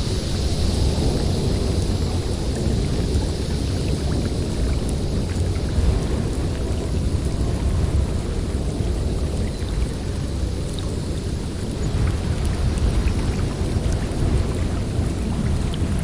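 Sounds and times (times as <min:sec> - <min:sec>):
blizzard wind blowing: 0:00.0 - 0:16.0.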